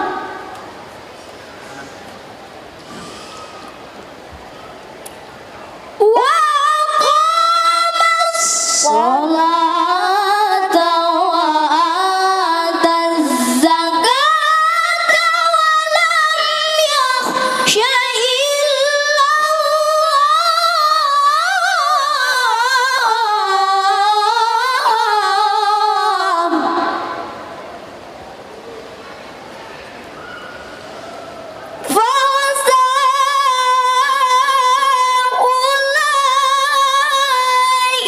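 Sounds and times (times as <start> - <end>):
child reciting in melodic chant: 6.0 - 27.0.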